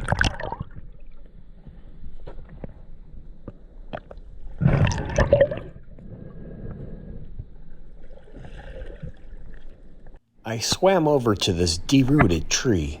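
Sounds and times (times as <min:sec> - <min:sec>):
water sloshing and gurgling: 0:00.0 - 0:10.3.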